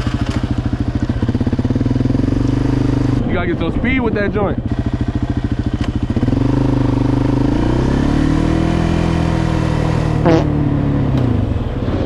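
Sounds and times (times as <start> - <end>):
dirt bike engine running: 0.0 - 11.6
short sharp sound: 10.3 - 10.6.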